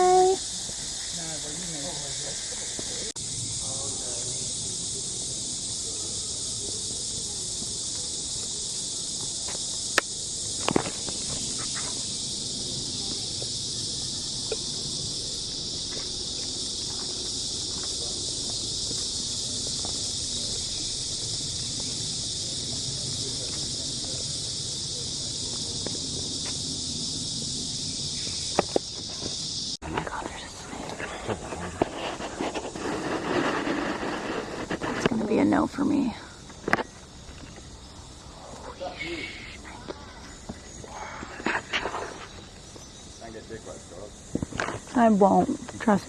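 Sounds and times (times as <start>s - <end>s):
high-pitched insect chorus: 0.0s - 46.0s.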